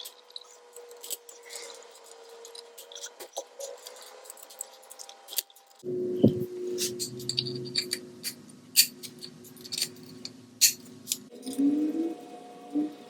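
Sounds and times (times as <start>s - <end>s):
hand tools clicking and tapping: 0.0s - 11.3s
faint steady hum: 3.6s - 13.0s.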